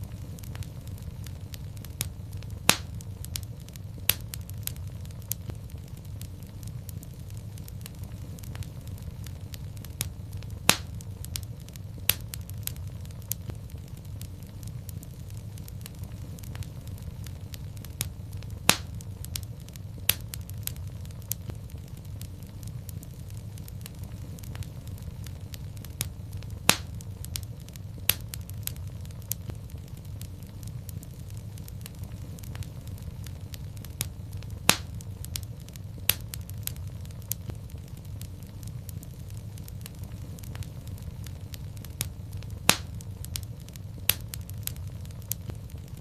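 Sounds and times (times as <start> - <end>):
low rumble of flames: 0.0 - 46.0
sharp pops of fire: 0.0 - 46.0
wood fire crackling: 0.0 - 46.0.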